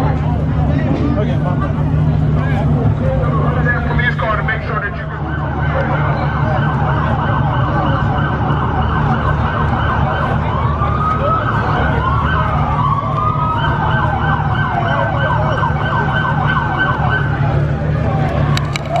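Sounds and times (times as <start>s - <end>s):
siren wailing: 3.2s - 18.0s
police siren yelp: 3.2s - 19.0s.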